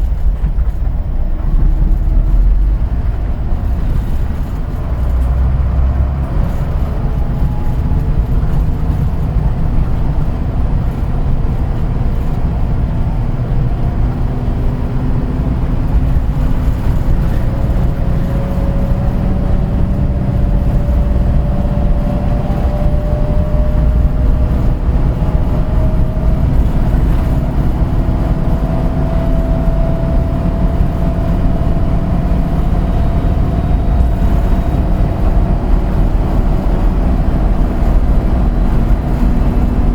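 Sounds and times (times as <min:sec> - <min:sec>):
bus engine and road rumble: 0:00.0 - 0:39.9
rising whine: 0:12.8 - 0:39.9.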